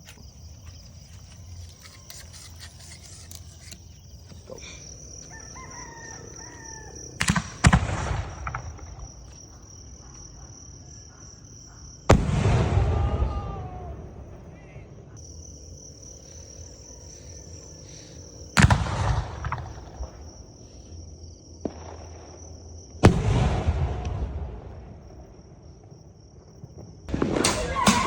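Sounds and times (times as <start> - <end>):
crickets chirping: 0.0 - 28.0
rooster crowing: 4.8 - 7.3
fireworks bangs: 7.0 - 10.4, 12.0 - 15.0, 18.6 - 20.3, 21.6 - 25.9, 26.8 - 28.0
fireworks crackling: 27.1 - 28.0.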